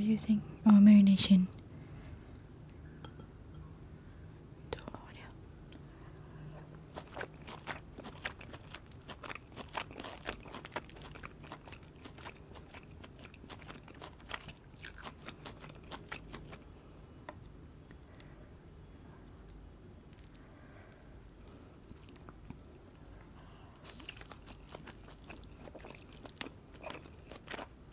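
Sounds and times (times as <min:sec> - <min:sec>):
close chewing: 0:06.1 - 0:16.7, 0:19.4 - 0:27.8.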